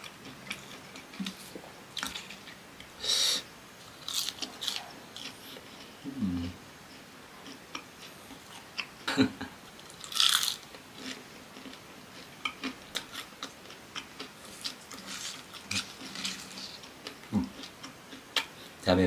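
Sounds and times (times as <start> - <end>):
crunchy chewing: 3.9 - 6.0, 9.8 - 18.6.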